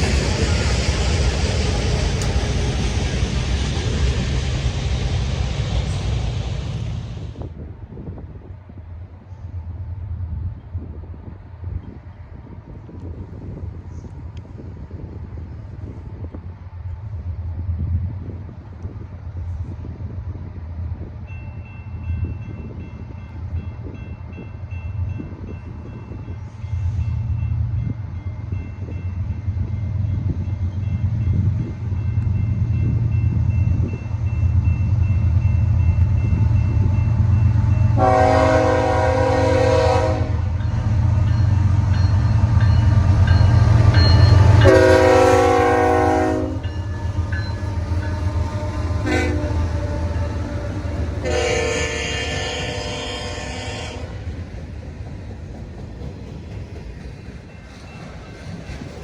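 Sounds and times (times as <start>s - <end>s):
diesel locomotive engine rumble: 0.0s - 59.0s
multi-chime air horn blasts: 44.6s - 49.6s.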